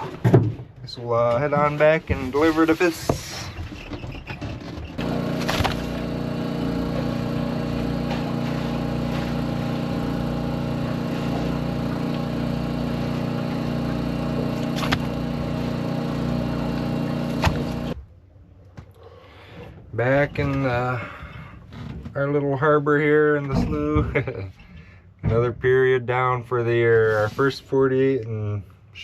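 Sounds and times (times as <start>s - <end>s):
outboard motor running: 2.0s - 18.1s.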